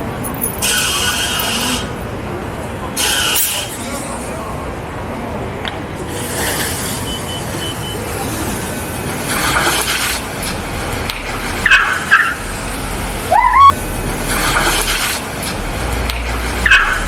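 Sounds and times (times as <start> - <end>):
cars passing: 0.0 - 17.0
high squeals: 13.1 - 13.8
brief high tone: 13.3 - 13.8.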